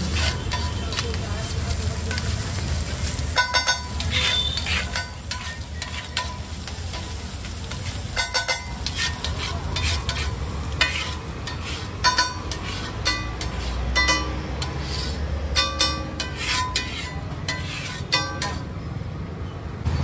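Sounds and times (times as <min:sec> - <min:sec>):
eggs sizzling in a pan: 0:00.0 - 0:18.7
metal spatula scraping a pan: 0:00.0 - 0:18.8
spatula clanking against pan: 0:00.1 - 0:01.2, 0:03.2 - 0:18.7.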